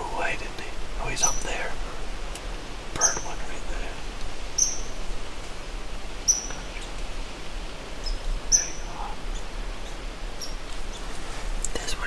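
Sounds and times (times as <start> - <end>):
forest background hiss: 0.0 - 12.0
small bird chirping: 1.0 - 1.7, 3.0 - 3.7, 4.4 - 5.1, 6.2 - 7.1, 8.0 - 12.0.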